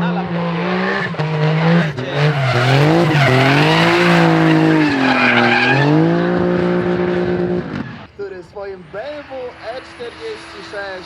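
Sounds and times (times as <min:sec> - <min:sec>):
car engine revving: 0:00.0 - 0:11.0
tyres squealing: 0:00.4 - 0:11.0.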